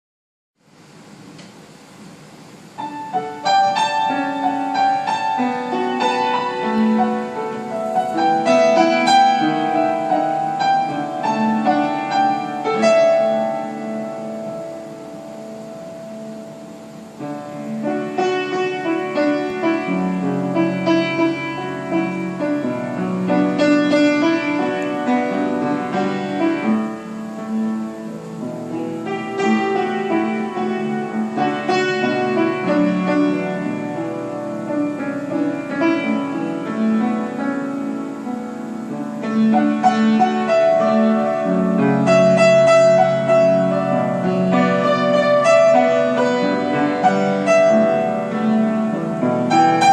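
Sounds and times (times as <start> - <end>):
piano melody over chords: 2.6 - 49.9.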